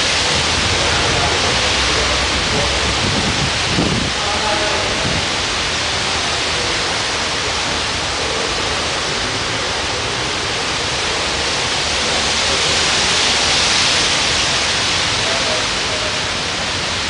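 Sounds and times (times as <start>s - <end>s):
wind rushing: 0.0s - 5.6s
rain: 0.0s - 17.0s.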